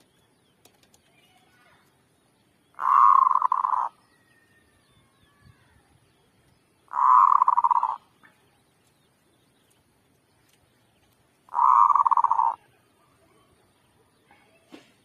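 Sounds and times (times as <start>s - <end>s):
dove cooing: 2.8s - 4.0s, 6.9s - 8.1s, 11.5s - 12.7s.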